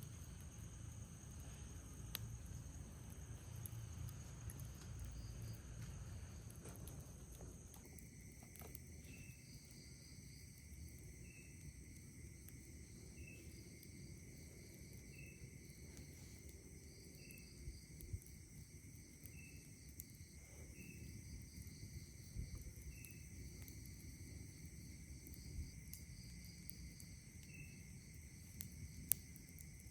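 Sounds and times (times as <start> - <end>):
short insect chirp: 0.0 - 6.6, 7.6 - 29.9
crickets chirring: 0.0 - 29.9
insect buzz: 0.0 - 29.9
faint clicks: 3.6 - 9.2.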